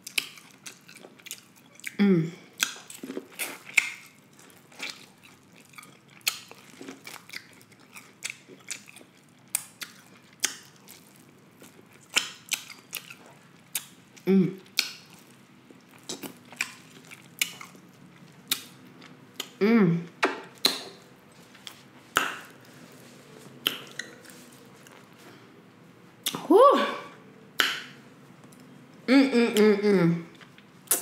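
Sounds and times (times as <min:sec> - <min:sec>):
chewing corn on the cob: 0:00.0 - 0:02.0, 0:02.6 - 0:19.6.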